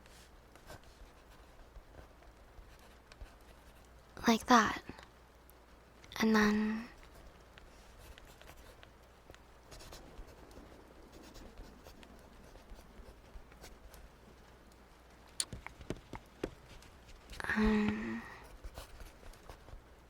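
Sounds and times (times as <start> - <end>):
sharp clicks and taps: 15.3 - 18.1.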